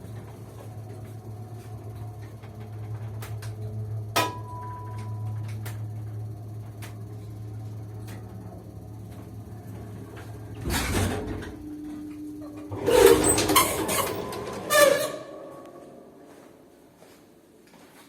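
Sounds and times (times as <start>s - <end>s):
lift humming: 0.0s - 17.0s
lift doors clattering and creaking: 8.0s - 16.3s.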